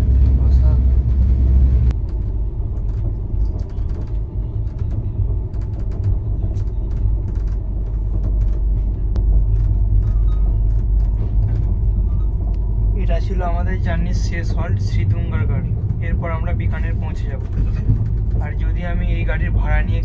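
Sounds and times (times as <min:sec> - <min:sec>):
train coach rumbling on track: 0:00.0 - 0:20.0
clicks knocks and creaks: 0:02.8 - 0:12.6, 0:17.4 - 0:18.4.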